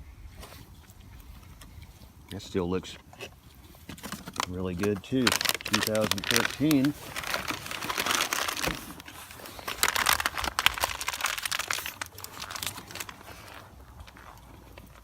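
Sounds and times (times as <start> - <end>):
plastic pouches crinkling: 3.8 - 15.0.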